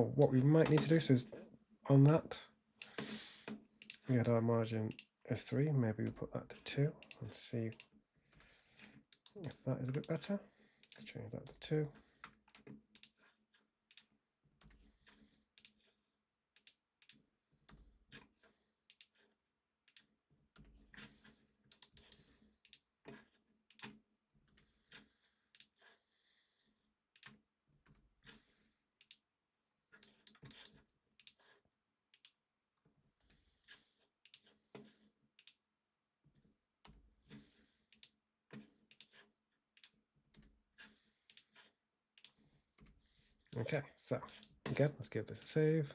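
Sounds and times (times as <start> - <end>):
mouse and keyboard clicks: 19.9 - 24.7, 30.0 - 32.4.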